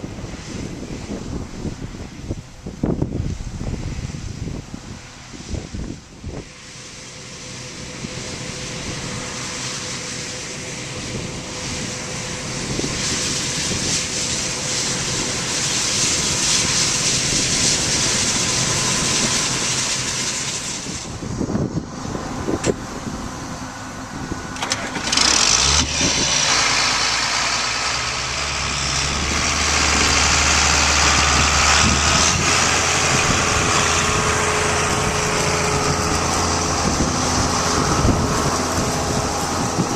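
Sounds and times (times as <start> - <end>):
farm machinery engine running: 0.0 - 39.9
low drone: 0.0 - 39.9
steady rushing noise: 0.0 - 39.9.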